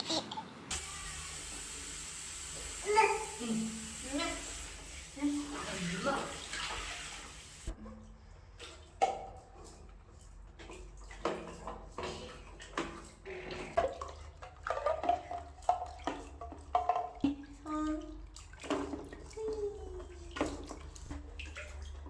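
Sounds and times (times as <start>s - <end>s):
baby babbling: 0.0s - 0.5s, 2.8s - 3.4s
bath water splashing: 0.7s - 7.8s, 8.6s - 22.0s.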